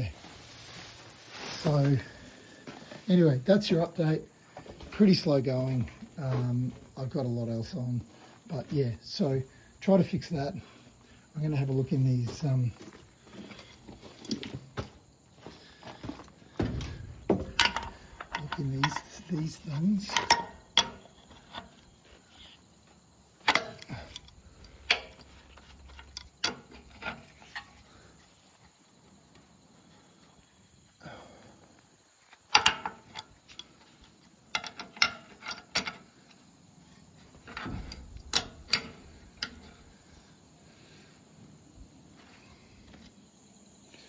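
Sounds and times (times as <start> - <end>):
metallic clicks and clunks: 16.1 - 22.6, 23.4 - 28.2, 32.3 - 40.3.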